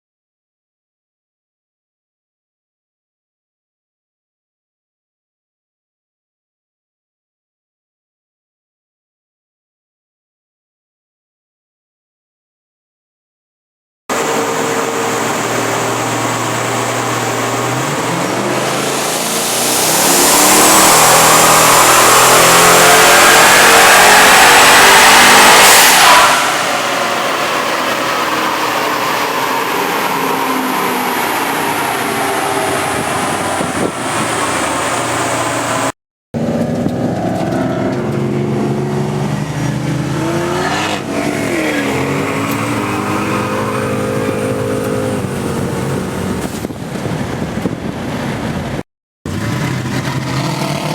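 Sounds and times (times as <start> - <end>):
car engine revving: 14.1 - 46.7, 49.3 - 50.9.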